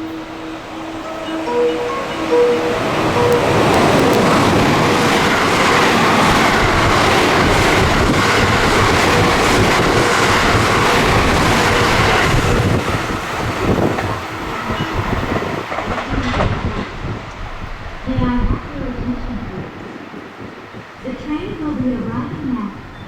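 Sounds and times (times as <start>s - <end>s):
train passing at speed: 0.0s - 23.0s
wheels clattering over rail joints: 2.9s - 17.6s.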